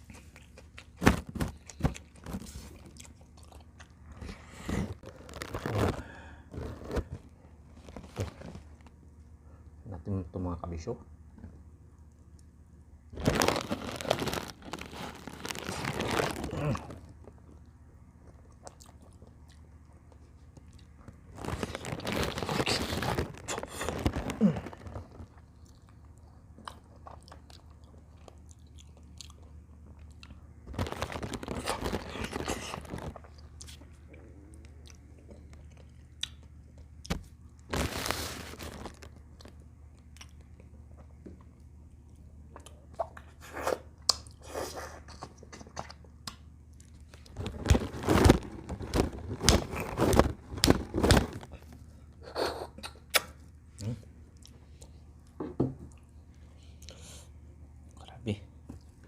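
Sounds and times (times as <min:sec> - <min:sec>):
person chewing and biting: 0:00.0 - 0:07.1, 0:25.0 - 0:37.2.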